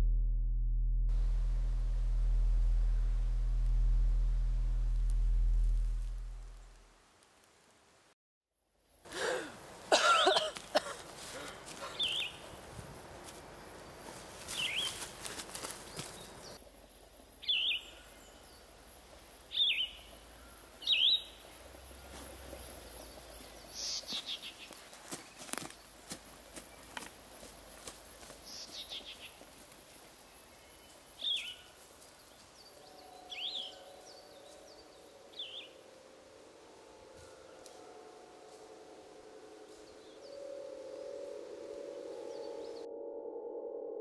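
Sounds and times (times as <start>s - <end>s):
faint outdoor background: 0.0s - 44.0s
bird chirping: 11.8s - 12.6s, 15.8s - 26.0s, 30.4s - 36.3s, 39.6s - 42.9s.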